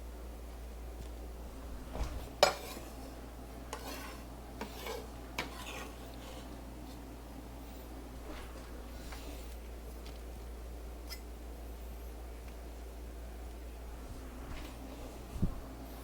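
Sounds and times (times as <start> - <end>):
dishes and utensils clinking: 2.4 - 2.9.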